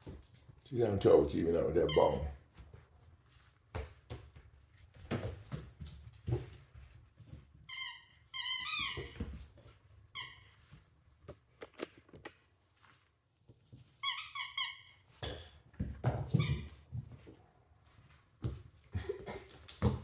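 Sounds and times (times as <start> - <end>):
squeaky toy squeaking: 7.7 - 9.2, 14.0 - 15.1.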